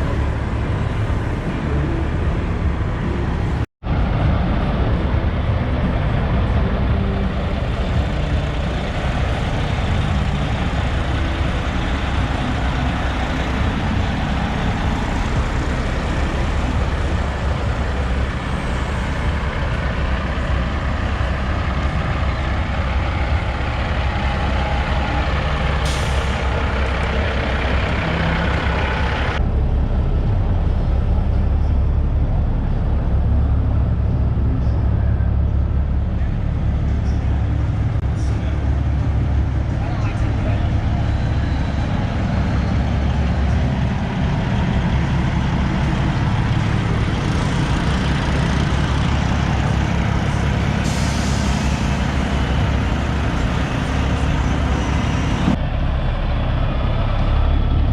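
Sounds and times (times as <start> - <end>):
truck diesel engines rumbling: 0.0 - 57.9
air brake hiss: 25.8 - 26.6, 50.8 - 52.4.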